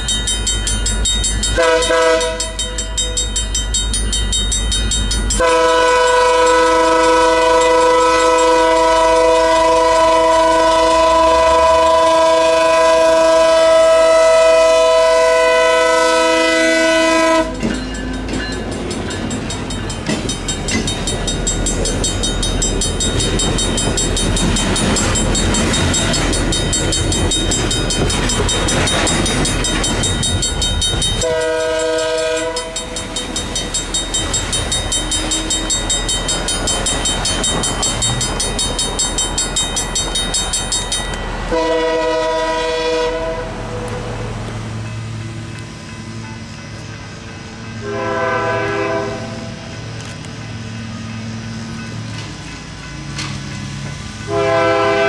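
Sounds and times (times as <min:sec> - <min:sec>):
train wheels rumbling on rail: 0:00.0 - 0:55.0
train horn chord: 0:01.6 - 0:03.1, 0:05.4 - 0:17.6, 0:31.2 - 0:33.2, 0:41.5 - 0:44.4, 0:47.7 - 0:49.8, 0:54.3 - 0:55.0.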